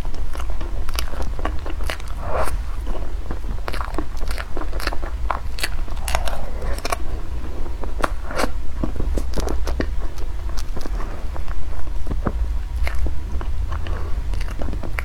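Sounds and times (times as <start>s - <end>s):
steady low hum: 0.7s - 15.0s
person biting and chewing food: 3.6s - 7.3s, 12.8s - 13.1s.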